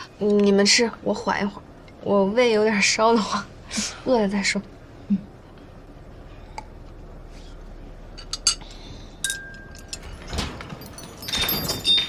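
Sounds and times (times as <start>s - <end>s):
ringing chime-like clink: 9.2s - 10.2s, 10.8s - 12.0s
small metal or glass objects clinking: 9.2s - 12.0s.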